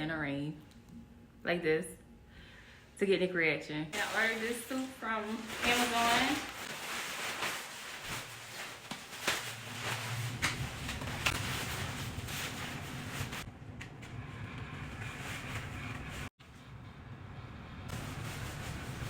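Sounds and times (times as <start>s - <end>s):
fan humming: 0.0s - 19.0s
costume rustling: 3.9s - 13.5s.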